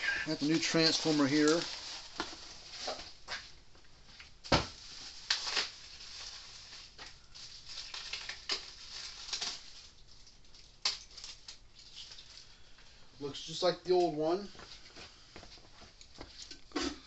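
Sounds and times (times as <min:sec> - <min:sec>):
rustling: 0:00.4 - 0:12.9.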